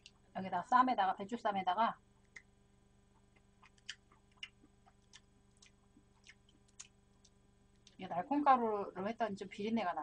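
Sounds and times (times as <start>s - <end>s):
person chewing food: 3.2s - 8.0s.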